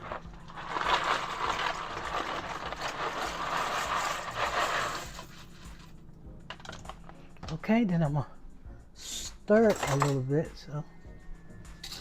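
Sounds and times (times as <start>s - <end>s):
dry pasta poured into pot: 0.0s - 5.5s.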